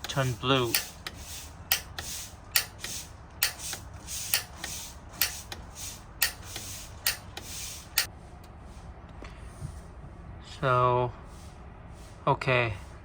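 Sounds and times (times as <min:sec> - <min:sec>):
pilot igniter clicking: 0:00.0 - 0:08.1.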